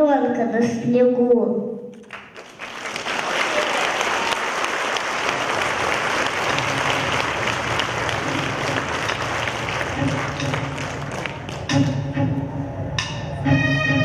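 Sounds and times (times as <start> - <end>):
audience applauding: 2.0 - 11.9.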